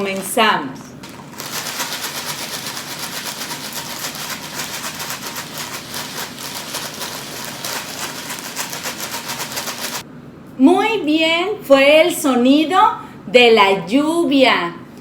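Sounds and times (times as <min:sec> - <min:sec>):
dry noodles rattling in packet: 0:01.0 - 0:10.0.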